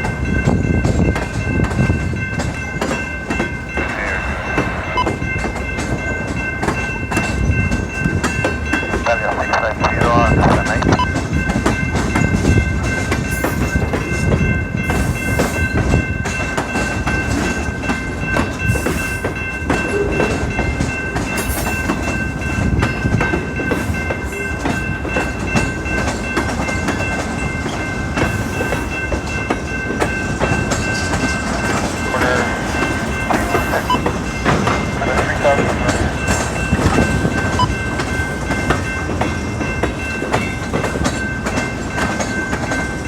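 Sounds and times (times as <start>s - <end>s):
freight train rumbling past: 0.0s - 43.0s
high-pitched ringing tone: 3.5s - 7.6s.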